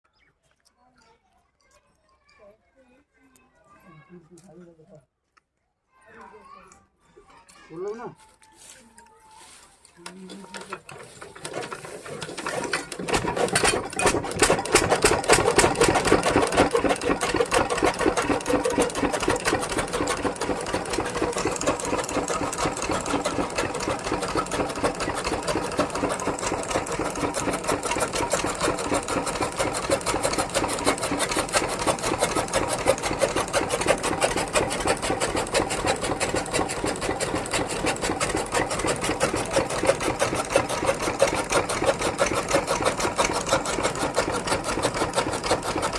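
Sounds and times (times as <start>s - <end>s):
diesel engine running: 10.1s - 45.9s.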